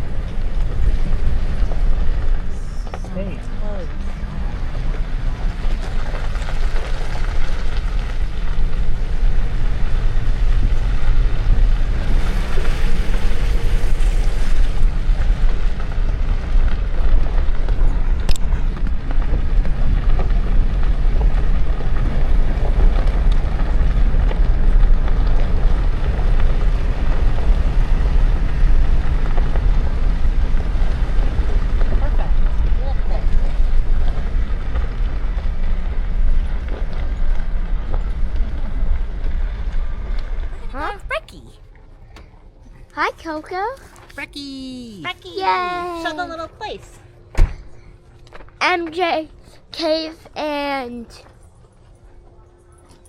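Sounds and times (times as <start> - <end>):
pickup engine and road noise: 0.0 - 41.4.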